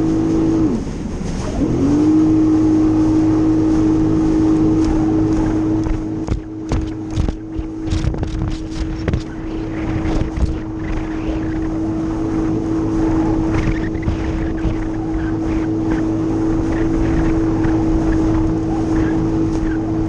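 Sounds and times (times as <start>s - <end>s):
jet ski engine whining: 0.0s - 20.0s
splashing knocks: 4.7s - 9.3s.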